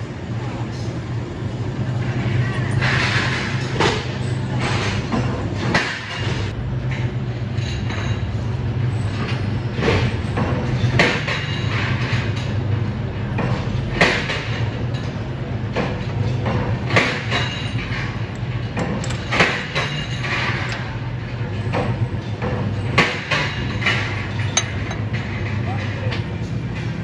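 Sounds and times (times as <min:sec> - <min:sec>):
metallic clanks and knocks: 0:09.2 - 0:27.0.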